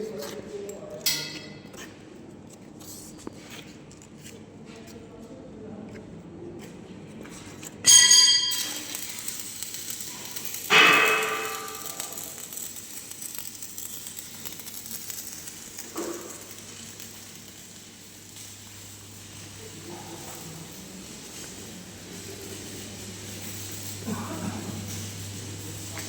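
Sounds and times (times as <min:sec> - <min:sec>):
metal struck ringing: 0:07.9 - 0:09.0, 0:10.7 - 0:12.4.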